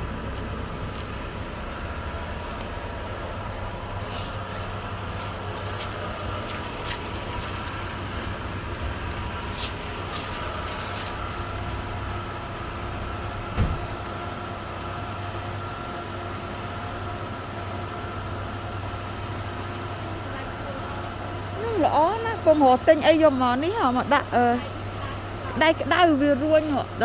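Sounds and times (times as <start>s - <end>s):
steady low hum: 0.0s - 27.0s
dull thump: 13.5s - 13.9s.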